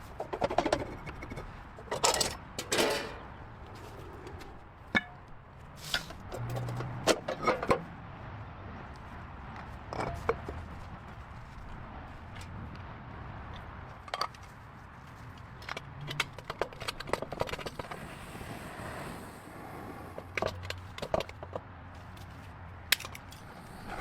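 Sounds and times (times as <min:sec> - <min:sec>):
hand tools clicking on engine: 0:15.3 - 0:18.6, 0:20.1 - 0:23.8.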